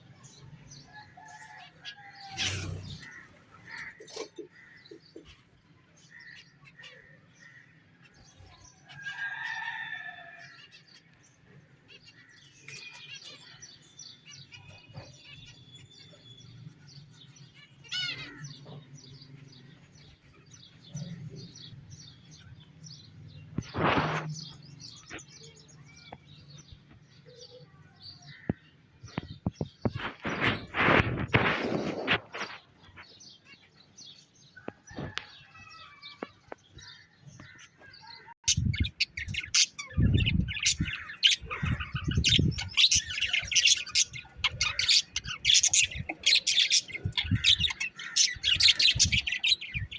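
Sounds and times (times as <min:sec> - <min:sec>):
birds chirping and calling: 0:00.0 - 0:49.9
rustles: 0:23.6 - 0:25.2.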